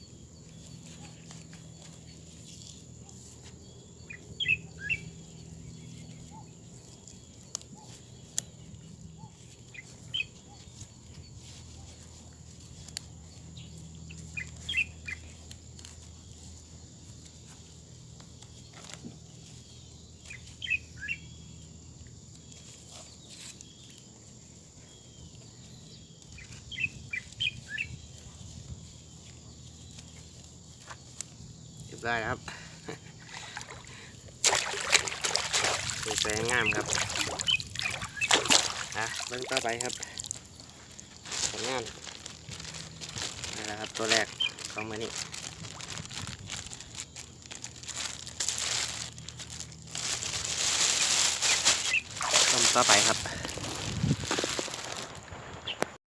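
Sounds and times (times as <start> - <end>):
bird chirping: 0.0 - 11.6, 13.2 - 15.4, 18.4 - 24.1, 24.8 - 41.8, 42.9 - 45.2
faint outdoor background: 0.0 - 56.0.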